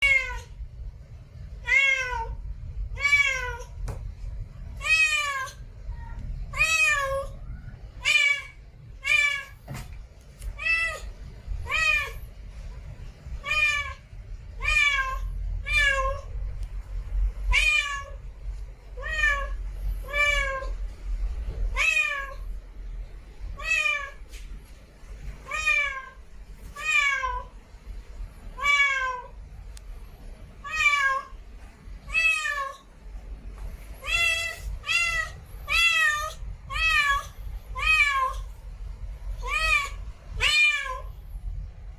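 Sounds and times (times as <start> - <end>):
cat meowing: 0.0 - 0.6, 1.6 - 3.8, 4.8 - 9.6, 10.6 - 12.2, 13.4 - 16.3, 17.5 - 18.2, 19.0 - 20.8, 21.7 - 22.5, 23.6 - 24.2, 25.4 - 26.2, 26.8 - 27.5, 28.6 - 29.4, 30.6 - 31.4, 32.1 - 32.8, 34.0 - 38.5, 39.4 - 41.1.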